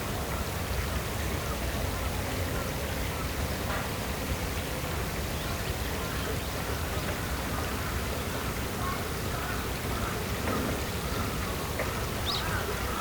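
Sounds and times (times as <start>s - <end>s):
steady rushing hiss: 0.0s - 13.0s
faint chirping calls: 5.4s - 13.0s.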